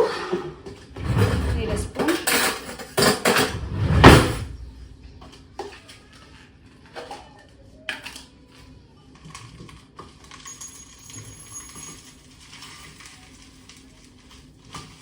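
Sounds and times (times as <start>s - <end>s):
dishes and cutlery clattering: 0.7s - 4.5s.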